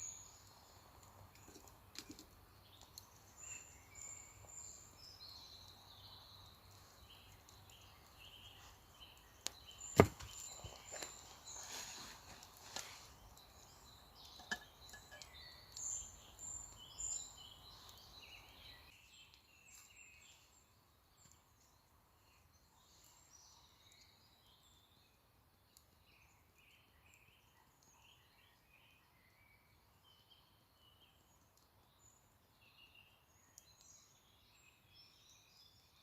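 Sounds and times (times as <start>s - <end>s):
faint birdsong: 0.0s - 36.0s
handling knocks and rustling: 9.9s - 13.0s.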